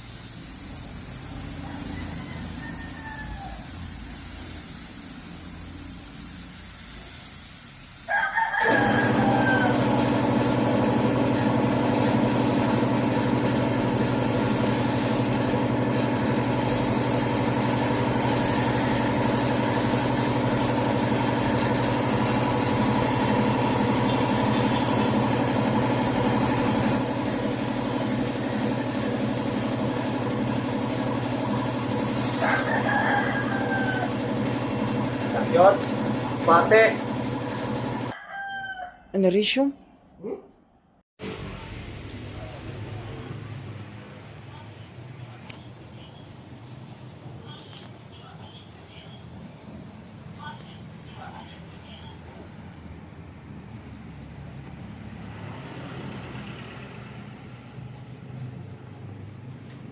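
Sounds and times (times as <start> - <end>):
rooster crowing: 1.4 - 4.1, 8.0 - 10.2, 31.8 - 34.3, 38.1 - 39.2.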